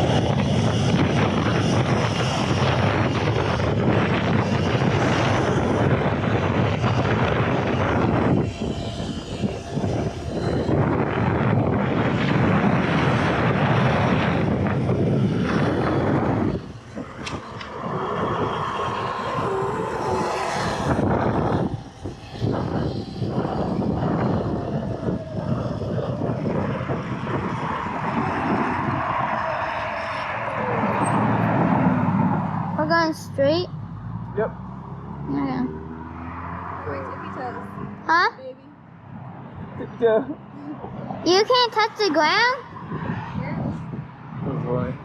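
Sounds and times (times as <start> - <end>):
electric motor whine: 0.0 - 29.0
wind rushing over microphone: 0.0 - 45.0.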